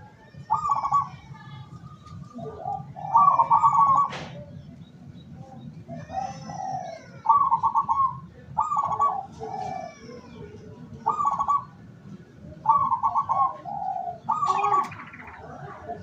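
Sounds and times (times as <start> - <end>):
dove cooing: 0.4 - 1.3, 2.2 - 4.5, 5.8 - 11.8, 12.6 - 16.0.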